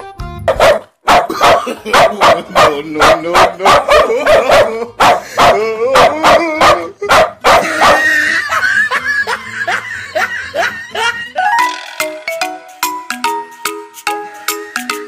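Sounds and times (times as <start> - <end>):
recorded dog barking: 0.5 - 8.5.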